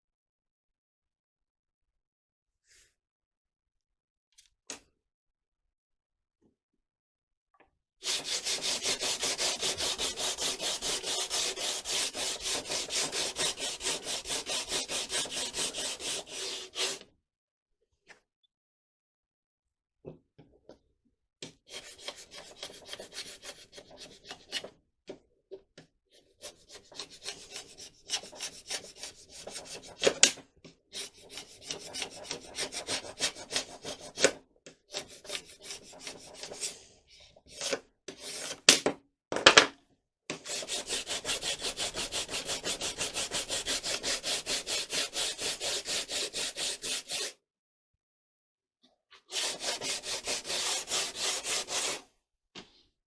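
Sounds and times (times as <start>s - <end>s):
hand sanding strokes: 8.0s - 17.0s, 30.9s - 34.2s, 40.5s - 47.3s, 49.3s - 52.0s.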